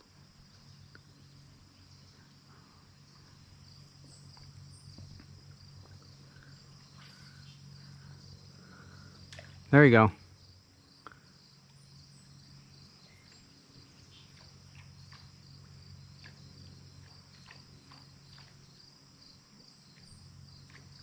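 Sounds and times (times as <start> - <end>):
insects chirping: 0.0 - 21.0
low steady hum: 0.0 - 21.0.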